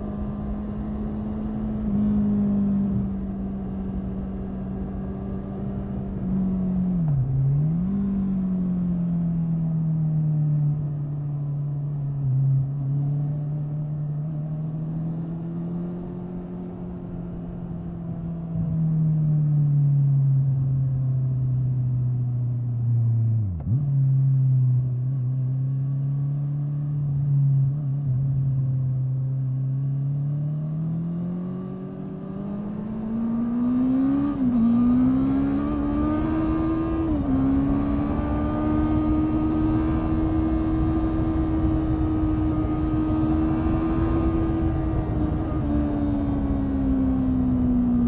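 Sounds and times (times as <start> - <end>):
motorcycle engine accelerating: 0.0 - 9.7, 23.4 - 48.0.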